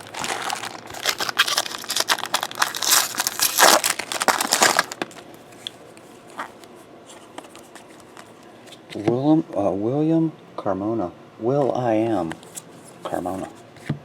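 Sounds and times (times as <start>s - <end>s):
plastic wrapper crinkling: 0.0s - 5.4s.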